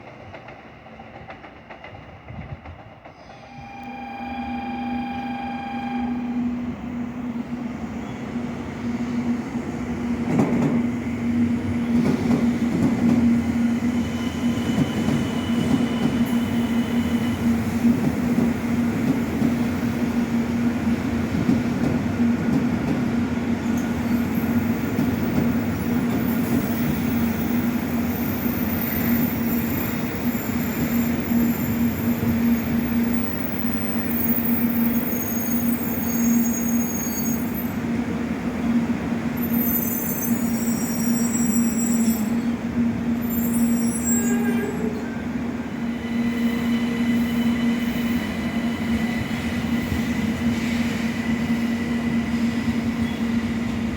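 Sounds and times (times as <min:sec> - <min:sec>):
train wheels rumbling on rail: 0:00.0 - 0:03.8, 0:06.5 - 0:53.9.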